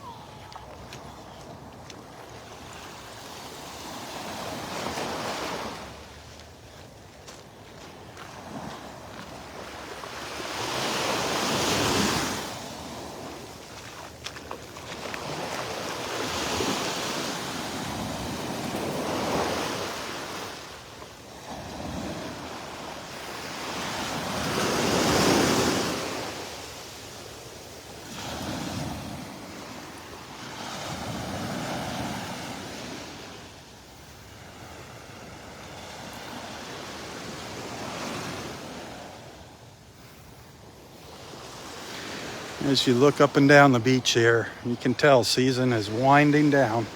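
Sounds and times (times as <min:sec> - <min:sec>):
surf breaking on sand: 0:08.3 - 0:20.8, 0:41.0 - 0:46.9.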